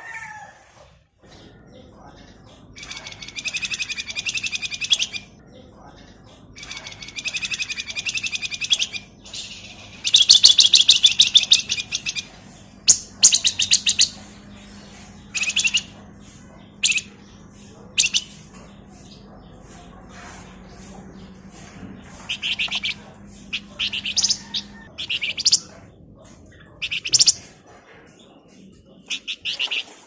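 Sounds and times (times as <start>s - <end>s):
songbird trilling: 2.8s - 5.3s, 6.6s - 12.3s, 12.9s - 14.4s, 15.3s - 15.9s, 16.8s - 17.1s, 18.0s - 18.4s, 22.2s - 25.7s, 26.8s - 27.4s, 29.1s - 29.9s.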